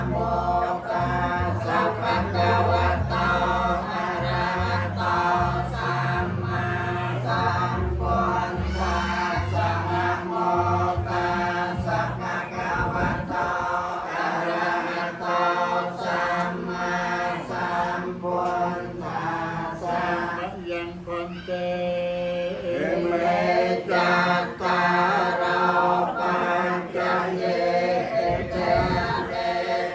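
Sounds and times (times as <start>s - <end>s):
low bass accompaniment: 0.0s - 13.9s
group chanting: 0.0s - 29.9s.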